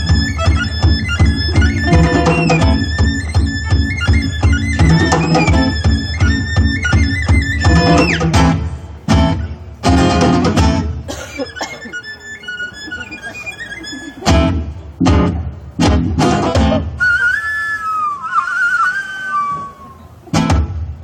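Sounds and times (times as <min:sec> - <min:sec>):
violin playing sliding notes: 0:00.0 - 0:08.6, 0:11.8 - 0:14.5
strummed guitar chords: 0:00.0 - 0:17.0, 0:20.2 - 0:21.0.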